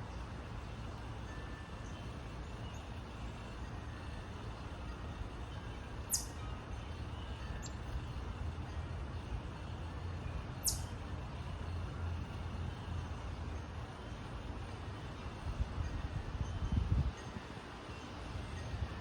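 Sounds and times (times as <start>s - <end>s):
songbirds chip notes: 5.7s - 8.2s, 10.2s - 11.4s.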